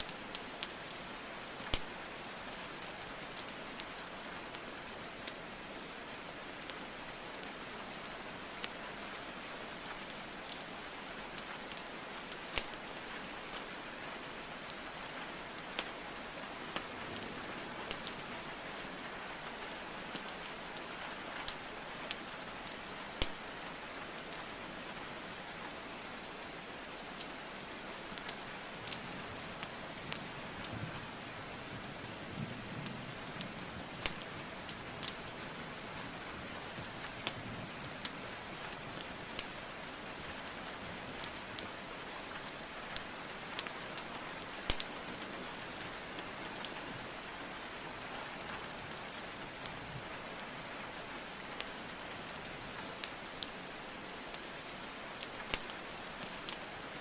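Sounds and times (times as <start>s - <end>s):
logs crackling in fireplace: 0.0s - 3.9s, 5.2s - 9.0s, 9.8s - 13.7s, 17.8s - 18.6s, 19.8s - 24.6s, 26.6s - 31.9s, 32.8s - 47.3s, 48.8s - 56.7s
steady rainfall: 0.0s - 57.0s.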